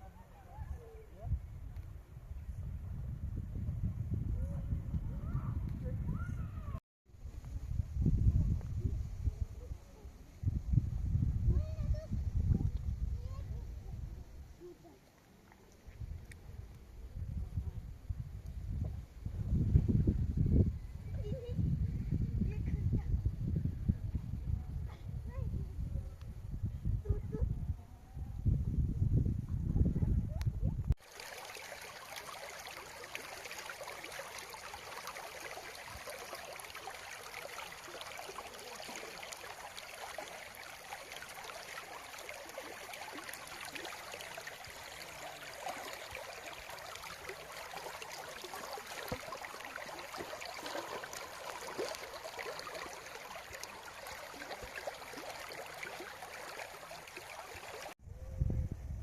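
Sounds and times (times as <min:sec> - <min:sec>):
stream running over rocks: 0:31.0 - 0:58.0.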